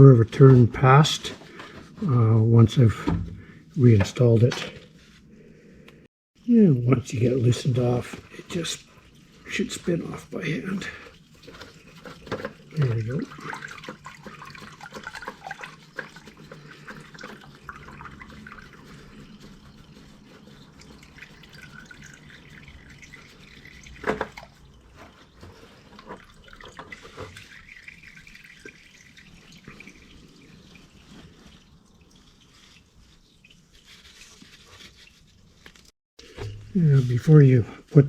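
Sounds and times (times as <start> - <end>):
oil dripping into drain pan: 10.9 - 20.0.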